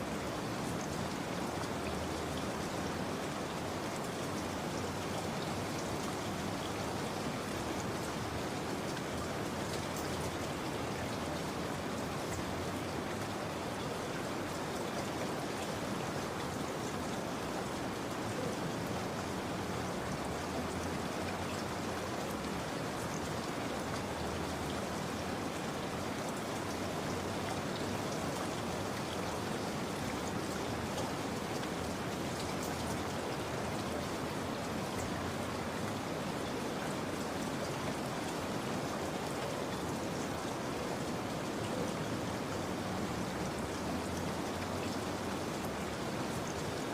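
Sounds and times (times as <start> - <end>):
patter of raindrops: 0.0 - 46.9
steady rain hiss: 0.0 - 46.9.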